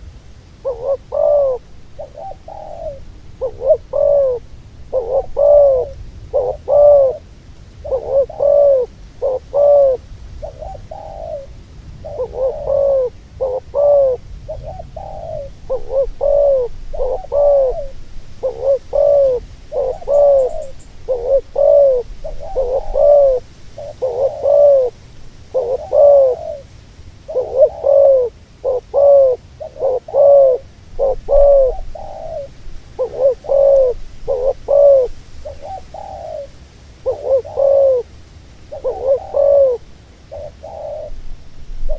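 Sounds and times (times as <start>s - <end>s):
dove cooing: 0.0s - 41.9s.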